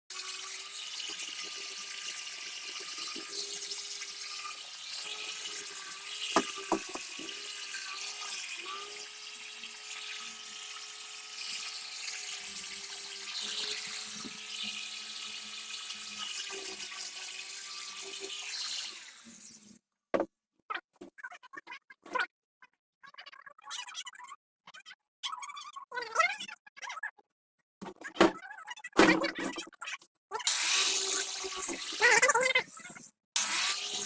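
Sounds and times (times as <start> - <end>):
small motor tool whining: 0.1 - 19.4, 33.4 - 34.0.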